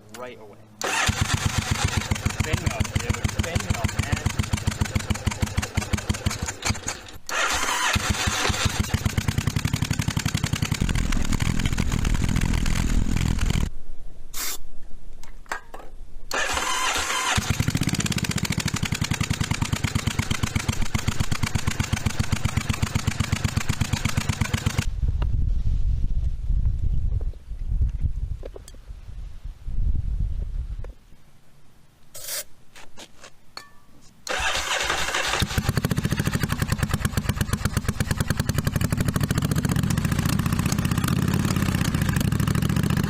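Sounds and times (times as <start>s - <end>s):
engine backfiring: 0.8s - 13.7s, 16.3s - 24.9s, 34.3s - 43.0s
motorcycle engine running roughly: 0.9s - 13.7s, 16.4s - 24.9s, 34.4s - 43.0s.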